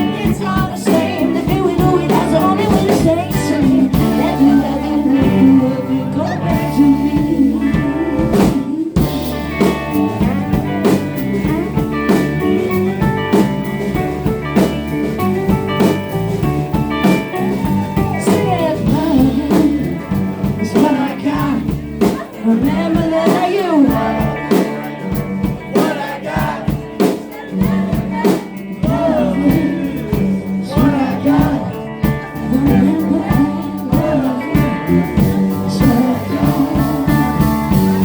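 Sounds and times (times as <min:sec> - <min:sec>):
blues-rock band playing: 0:00.0 - 0:38.0
electric guitar lead lines: 0:00.0 - 0:38.0.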